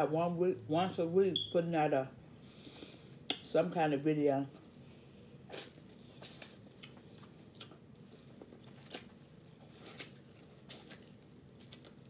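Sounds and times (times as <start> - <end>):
person biting and chewing: 5.5 - 7.8, 8.6 - 12.0.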